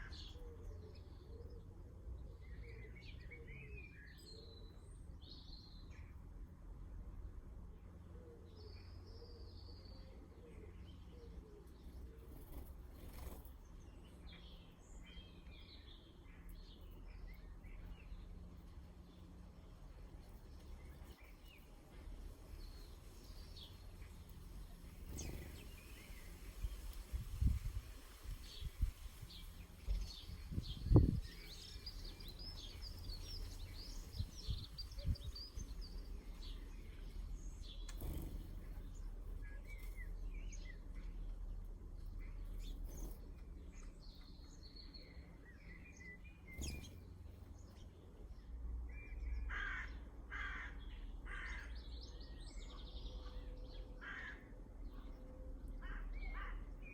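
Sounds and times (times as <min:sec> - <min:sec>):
small birds chirping: 0:07.8 - 0:56.9
birds singing and chirping: 0:24.9 - 0:26.8, 0:28.4 - 0:41.2, 0:42.0 - 0:50.0.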